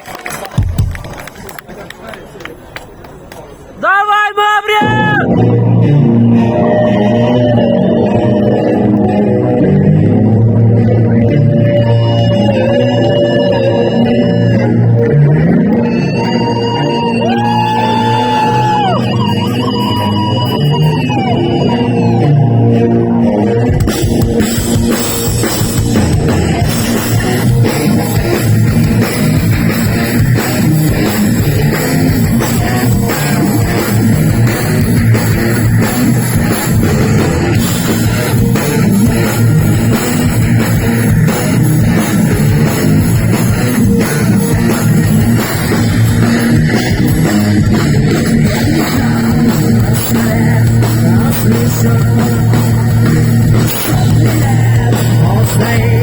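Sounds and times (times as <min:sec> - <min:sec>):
distorted electric guitars and bass: 0:04.8 - 0:56.0
pounding drum kit: 0:23.6 - 0:56.0.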